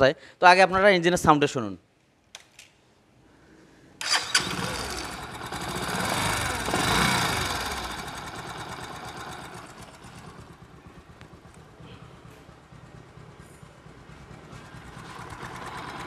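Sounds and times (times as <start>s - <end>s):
motorcycle engine revving: 4.0s - 16.0s.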